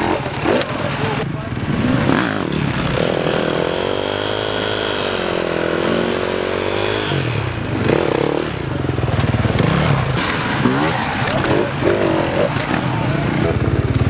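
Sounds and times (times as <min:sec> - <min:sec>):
dirt bike engine revving: 0:00.0 - 0:14.0
sharp clicks: 0:09.1 - 0:12.9.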